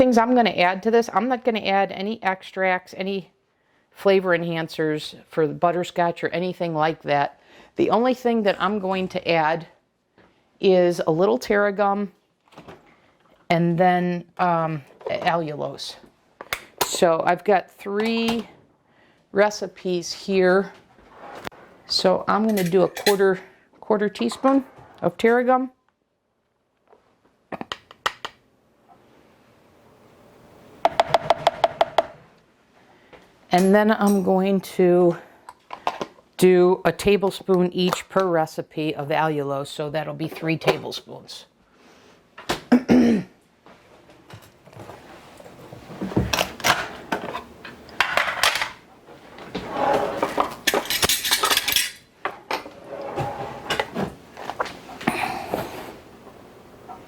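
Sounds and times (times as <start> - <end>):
metal spoon clinking against dishes: 22.5 - 23.2.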